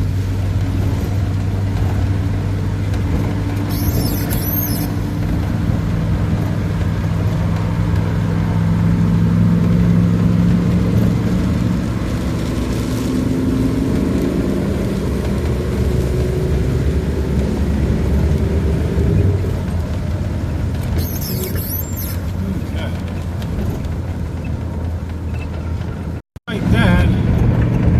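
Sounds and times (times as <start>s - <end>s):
van engine and road noise: 0.0s - 27.9s
high squeak: 3.6s - 5.2s, 21.0s - 22.4s.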